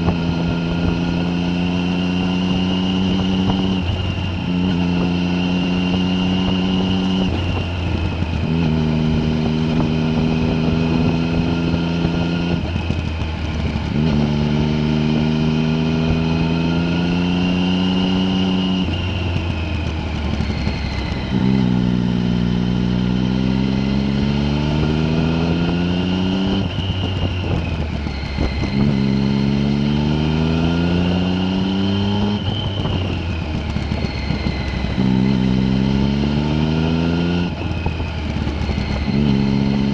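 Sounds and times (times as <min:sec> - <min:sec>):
high whine: 0:00.0 - 0:39.9
vehicle engine revving under load: 0:20.2 - 0:27.6, 0:28.2 - 0:39.9.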